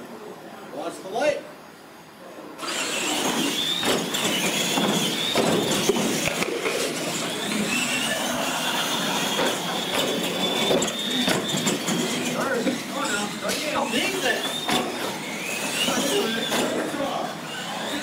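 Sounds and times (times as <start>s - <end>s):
toy truck motor whine: 2.6s - 18.0s
tyres rumbling on concrete: 2.9s - 18.0s.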